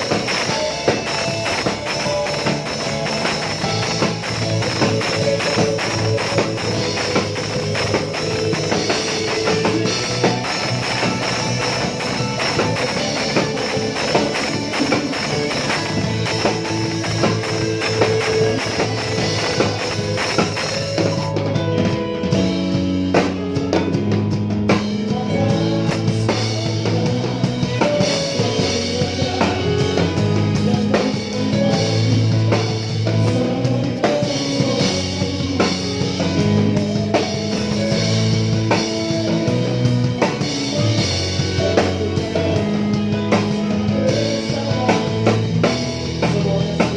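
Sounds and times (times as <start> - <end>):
cymbals: 0.0 - 21.4
drum kit beat: 0.0 - 46.9
live band music: 0.0 - 46.9.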